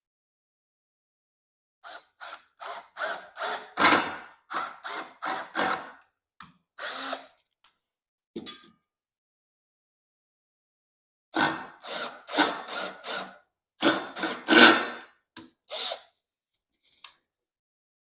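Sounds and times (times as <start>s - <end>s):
power tool cutting into wood: 1.8s - 5.9s, 6.8s - 7.3s, 11.4s - 15.0s, 15.7s - 16.0s.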